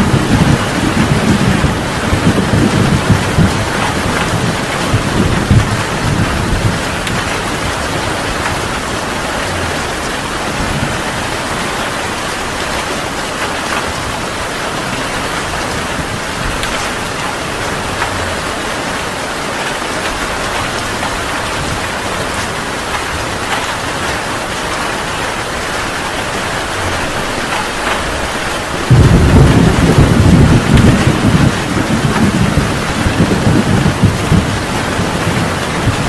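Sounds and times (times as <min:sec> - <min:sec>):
low rumble of thunder: 0:00.0 - 0:12.7, 0:28.8 - 0:36.0
heavy rain falling: 0:00.0 - 0:36.0.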